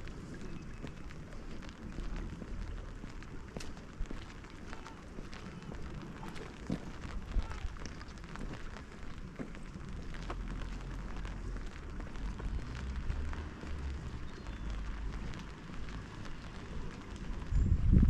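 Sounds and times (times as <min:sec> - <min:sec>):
rain pattering: 0:00.0 - 0:18.0.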